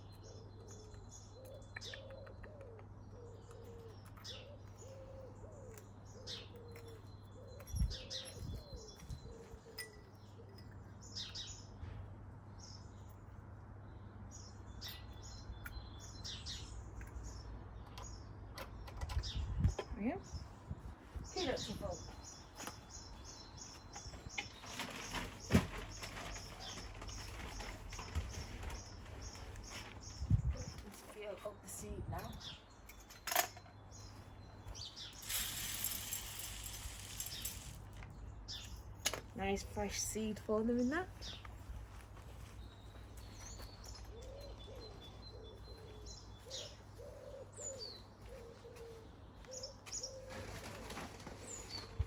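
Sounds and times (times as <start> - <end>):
birds chirping: 0.0 - 52.0
pigeon cooing: 1.4 - 8.1, 44.2 - 50.5.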